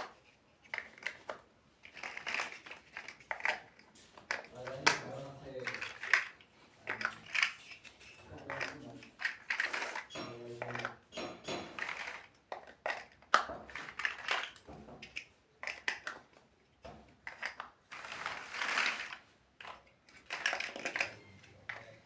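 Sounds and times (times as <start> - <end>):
plastic bricks clicking: 0.0 - 16.4, 17.1 - 22.0
rustling: 17.9 - 22.0.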